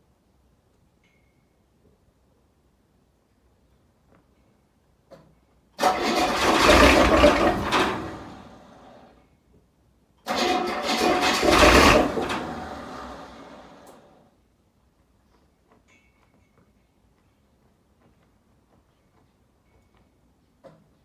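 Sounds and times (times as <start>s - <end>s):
diesel engine cold start: 5.8s - 9.2s, 10.3s - 14.2s.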